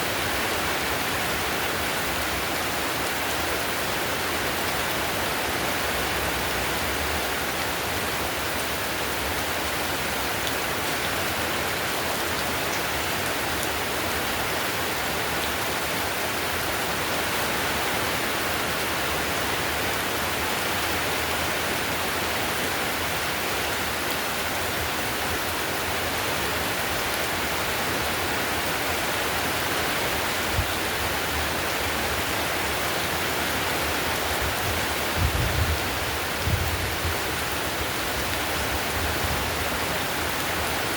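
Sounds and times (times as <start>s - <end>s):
heavy rain on a tiled roof: 0.0s - 40.9s.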